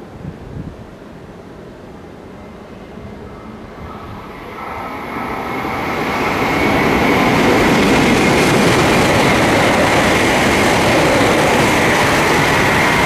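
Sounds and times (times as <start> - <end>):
high-speed train passing: 0.0 - 13.0.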